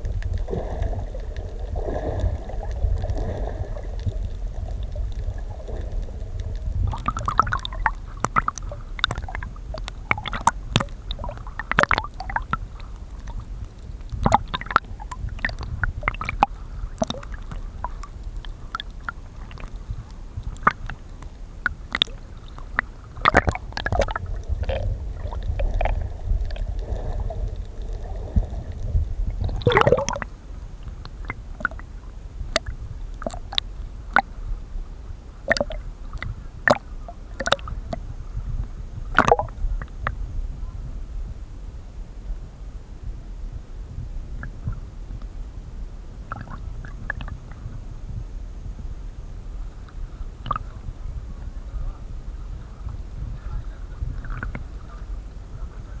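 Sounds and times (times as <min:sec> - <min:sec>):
sharp crackling clicks: 0:00.0 - 0:31.9, 0:32.5 - 0:34.3, 0:39.2 - 0:40.2
gurgling bubbles: 0:00.0 - 0:34.4, 0:35.4 - 0:40.2, 0:46.2 - 0:47.8, 0:50.4 - 0:51.4, 0:52.7 - 0:55.1
underwater low rumble: 0:00.0 - 0:56.0.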